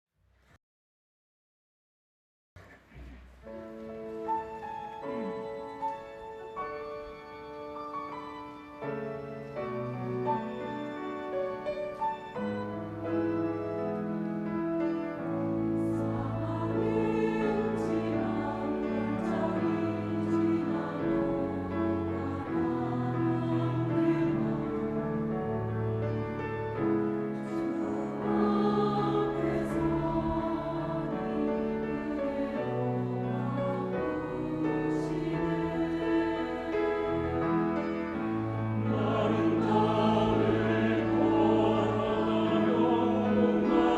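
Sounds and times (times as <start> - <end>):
piano: 2.6 - 43.9
choir singing: 15.0 - 43.9.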